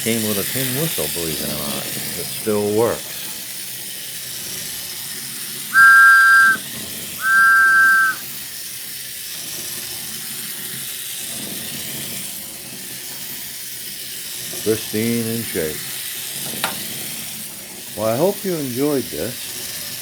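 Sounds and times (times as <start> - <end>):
toy train whistle blasts: 5.8 - 6.6, 7.2 - 8.2.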